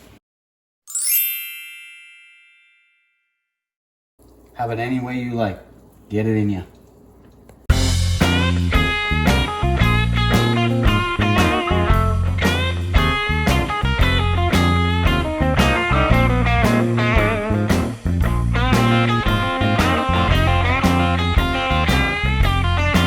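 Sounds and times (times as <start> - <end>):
blues-rock music: 7.7 - 23.0.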